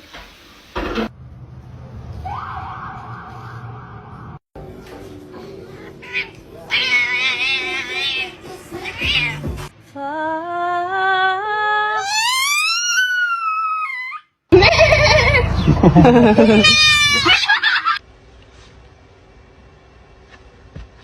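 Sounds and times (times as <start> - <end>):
cat yowling: 6.0 - 9.5, 12.0 - 14.3, 16.2 - 17.4.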